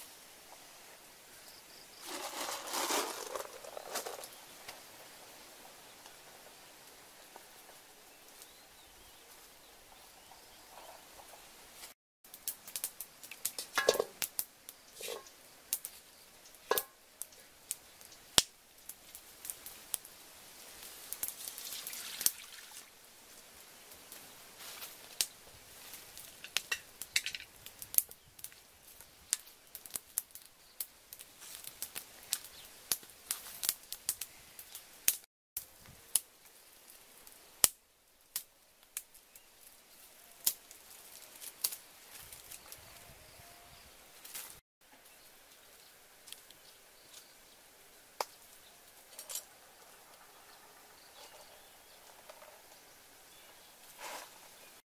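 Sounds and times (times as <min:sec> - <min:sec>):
firewood crackling: 0:01.7 - 0:43.0, 0:44.1 - 0:54.8
metal wok knocks and scrapes: 0:13.5 - 0:14.2, 0:15.0 - 0:15.3, 0:16.7 - 0:17.0.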